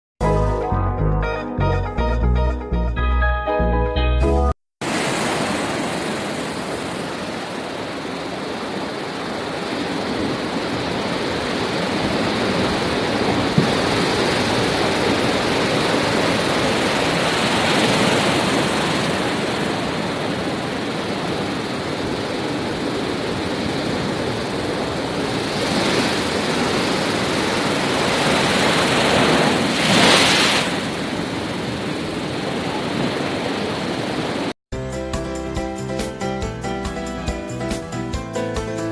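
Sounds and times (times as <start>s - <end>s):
sea surf waves washing: 4.8s - 34.5s.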